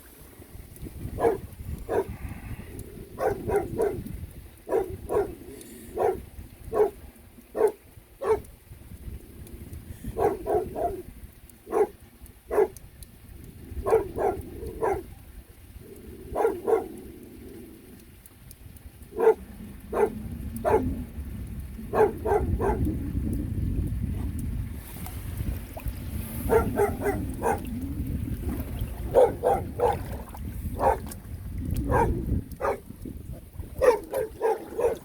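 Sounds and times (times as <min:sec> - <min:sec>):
dog barking: 0:01.2 - 0:02.1, 0:03.2 - 0:04.0, 0:04.7 - 0:08.5, 0:10.2 - 0:11.0, 0:11.7 - 0:12.8, 0:13.8 - 0:15.1, 0:16.3 - 0:16.9, 0:19.1 - 0:20.9, 0:21.9 - 0:22.9, 0:26.5 - 0:27.7, 0:29.1 - 0:30.0, 0:30.8 - 0:31.1, 0:31.8 - 0:32.8, 0:33.8 - 0:35.0.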